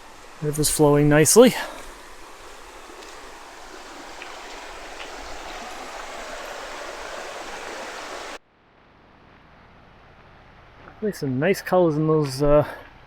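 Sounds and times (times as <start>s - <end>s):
river flowing: 0.0s - 8.4s.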